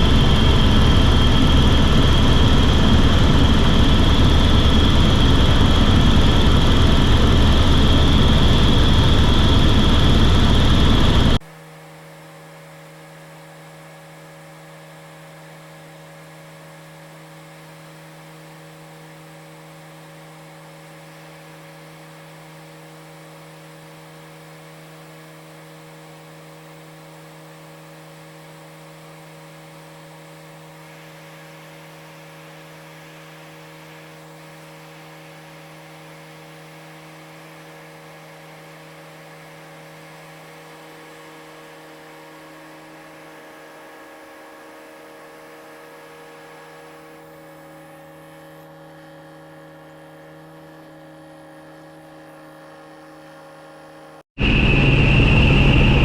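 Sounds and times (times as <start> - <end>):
helicopter engine and rotor rumble: 0.0 - 11.4, 54.4 - 56.0.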